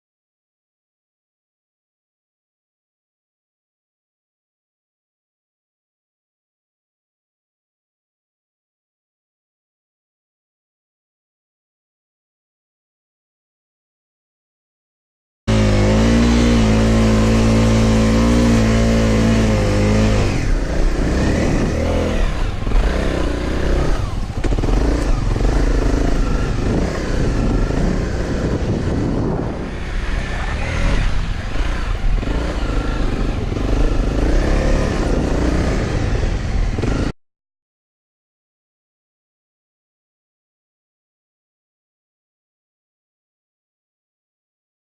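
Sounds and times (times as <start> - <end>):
motorcycle engine running: 15.5 - 37.2.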